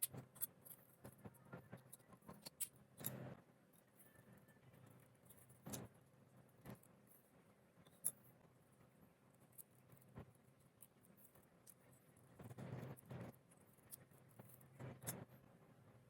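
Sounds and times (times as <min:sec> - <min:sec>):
faint clicks and scratches: 0:00.0 - 0:16.0.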